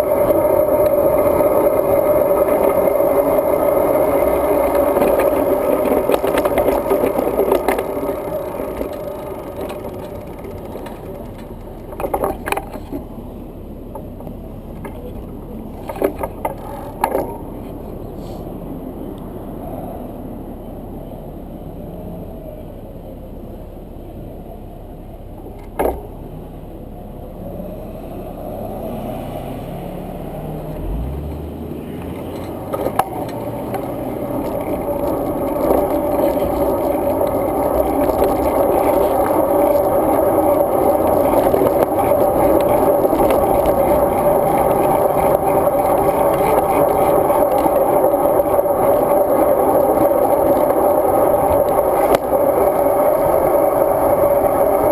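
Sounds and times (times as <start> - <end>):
bicycle tyre noise: 0.0 - 13.3, 27.4 - 54.9
wind noise: 32.4 - 54.9.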